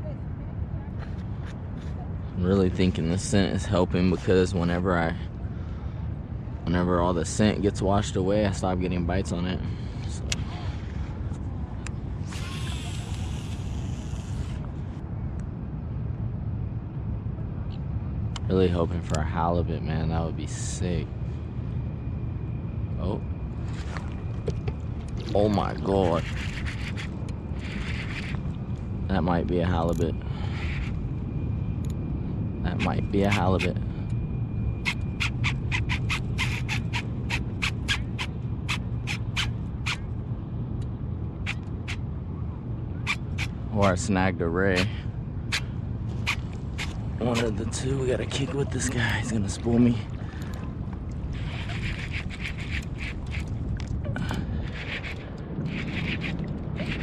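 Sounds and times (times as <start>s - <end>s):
wind rumble on microphone: 0.0s - 57.0s
fishing reel drag clicking: 12.2s - 14.6s, 26.2s - 28.4s, 34.8s - 40.0s.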